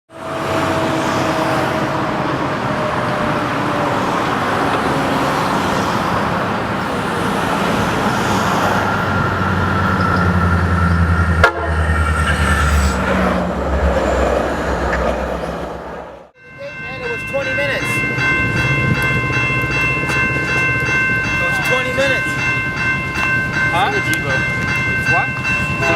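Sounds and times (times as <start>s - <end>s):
diesel locomotive engine rumble: 0.1s - 25.9s
train wheels on rails: 16.9s - 25.9s.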